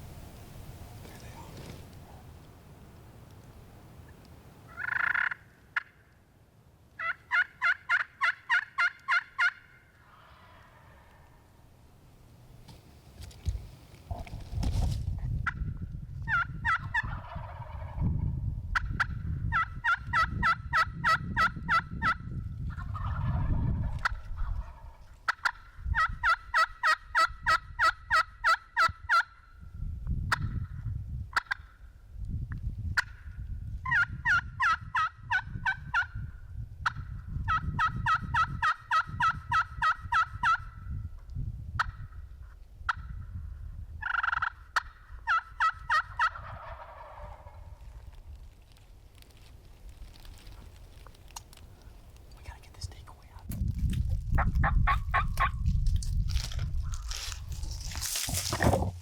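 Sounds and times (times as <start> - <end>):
turkey yelping: 7.0 - 11.1, 44.0 - 47.6.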